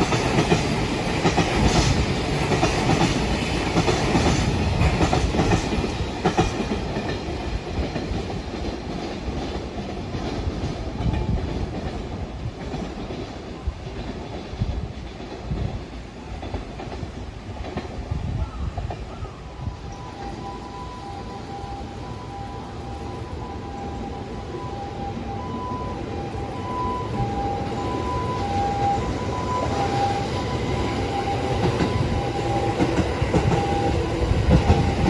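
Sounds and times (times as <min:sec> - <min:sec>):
train wheels clacking: 0:00.0 - 0:24.1, 0:26.2 - 0:35.0.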